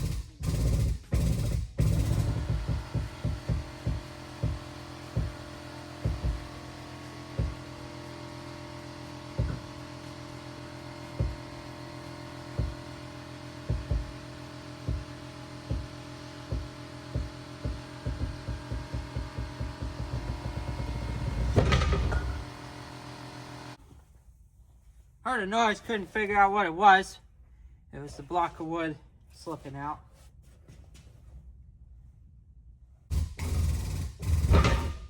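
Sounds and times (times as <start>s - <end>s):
mechanical hum: 0.0s - 24.1s.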